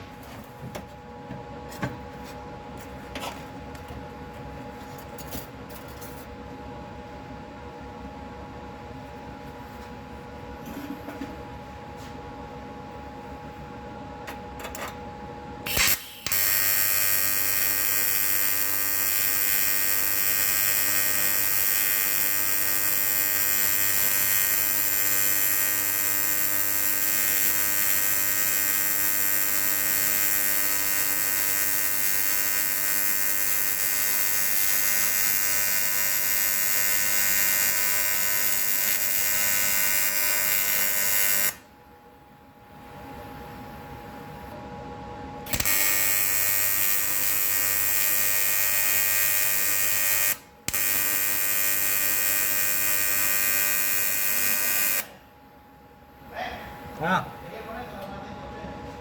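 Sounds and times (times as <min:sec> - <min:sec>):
welding arc buzzing: 0:15.7 - 0:41.7, 0:45.5 - 0:55.2.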